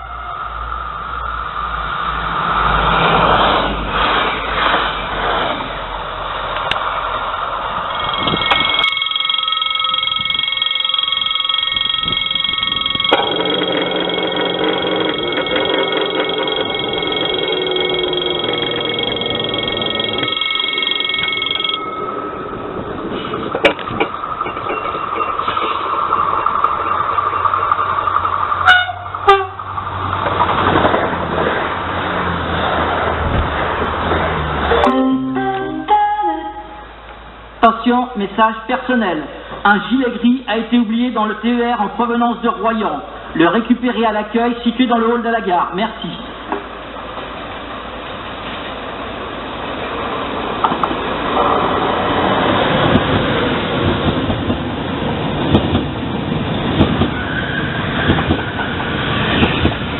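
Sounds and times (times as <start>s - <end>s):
high-pitched train whine: 0.0s - 30.2s, 34.6s - 37.9s, 45.9s - 59.9s
train rumbling: 0.0s - 37.7s, 39.3s - 59.9s
sharp train clacks: 7.7s - 31.7s, 49.7s - 59.9s.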